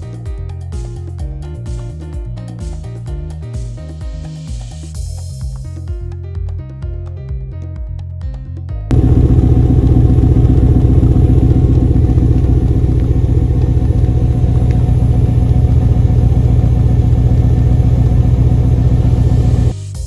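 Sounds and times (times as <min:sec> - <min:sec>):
engine running loudly: 0:08.9 - 0:19.8.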